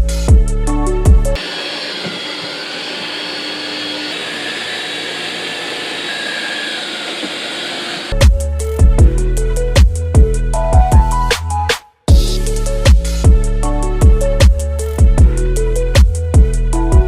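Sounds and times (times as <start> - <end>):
robot vacuum whirring: 1.4 - 8.2.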